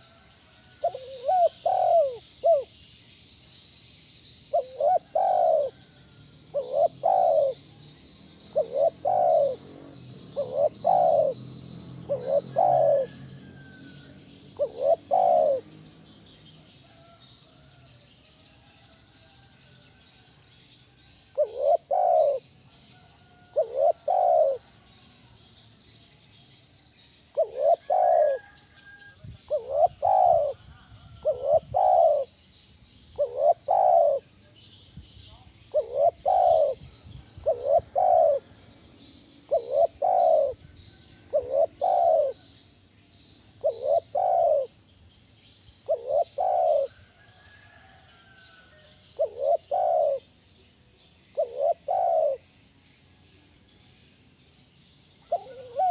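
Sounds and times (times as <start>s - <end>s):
dove cooing: 0.0s - 2.8s, 4.5s - 17.2s, 21.3s - 24.9s, 27.3s - 32.4s, 33.2s - 34.3s, 35.7s - 38.7s, 39.4s - 42.5s, 43.6s - 44.8s, 45.8s - 47.9s, 49.2s - 50.3s, 51.3s - 52.4s, 55.2s - 55.9s
faint bird chirps: 0.0s - 55.9s.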